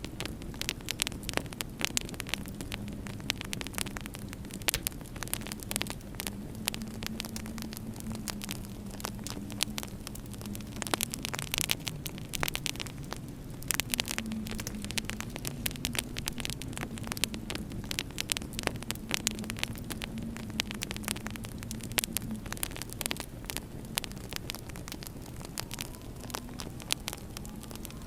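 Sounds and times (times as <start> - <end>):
wood fire crackling and popping: 0.0 - 28.0
low wavering hum: 2.2 - 28.0.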